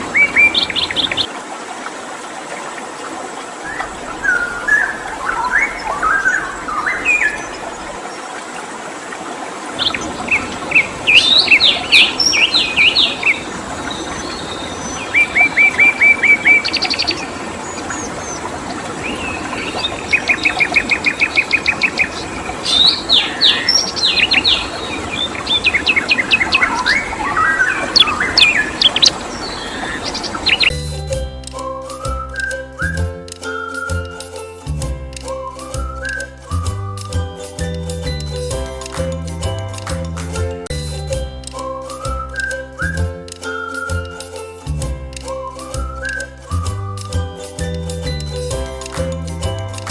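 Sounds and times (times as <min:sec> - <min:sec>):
songbird whistling and trilling: 0:03.6 - 0:08.0, 0:09.8 - 0:16.8, 0:17.6 - 0:19.4, 0:22.7 - 0:25.0, 0:30.5 - 0:39.4, 0:41.0 - 0:49.6.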